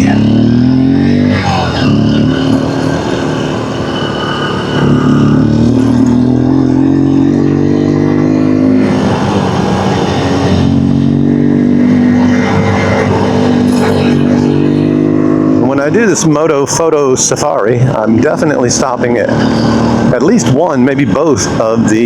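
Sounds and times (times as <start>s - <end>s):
dirt bike engine running: 0.0s - 16.3s.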